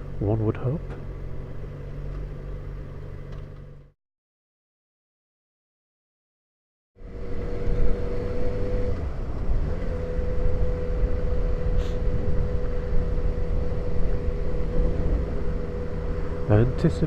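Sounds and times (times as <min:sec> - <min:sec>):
wind and road noise: 0:00.0 - 0:03.9, 0:07.0 - 0:17.0
motorcycle engine running: 0:07.0 - 0:17.0.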